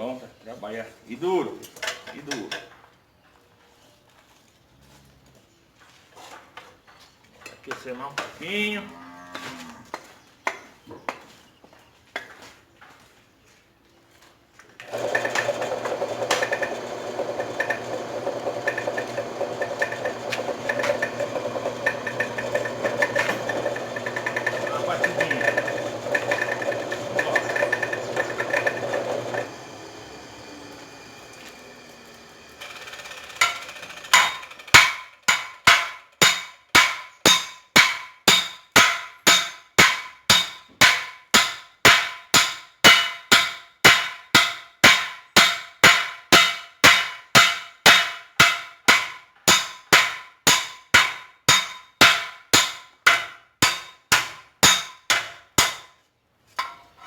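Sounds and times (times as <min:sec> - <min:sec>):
machine hum: 0:14.9 - 0:34.5
hammer strikes on anvil: 0:33.4 - 0:56.0.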